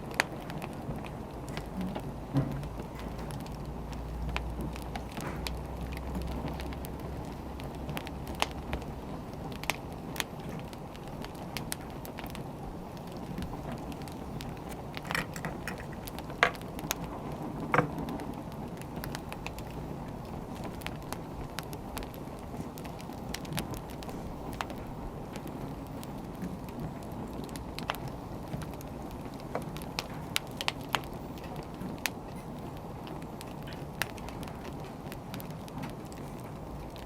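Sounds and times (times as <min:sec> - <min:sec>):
firewood crackling and popping: 0:00.0 - 0:37.0.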